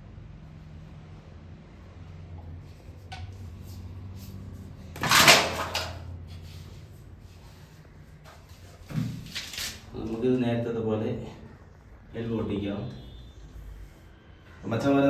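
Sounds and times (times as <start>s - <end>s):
pipe scraping clatter: 2.7s - 9.9s
steady low hum: 5.9s - 15.0s.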